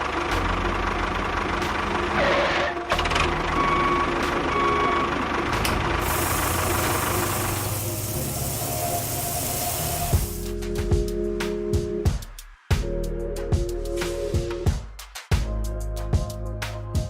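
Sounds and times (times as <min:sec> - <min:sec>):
short beeps: 0:03.6 - 0:05.2
loud rushing noise: 0:05.6 - 0:10.5
small electric motor humming: 0:06.0 - 0:10.4.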